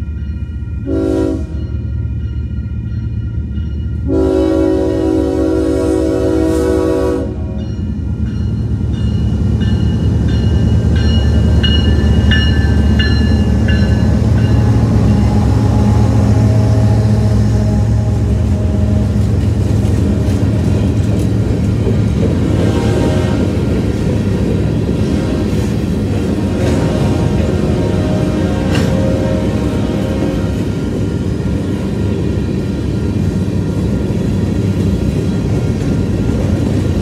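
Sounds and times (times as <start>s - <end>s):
locomotive bell ringing: 0.0s - 4.2s, 7.4s - 21.1s
train horn blast: 0.8s - 1.8s, 4.0s - 7.7s, 14.3s - 21.2s, 26.6s - 30.8s.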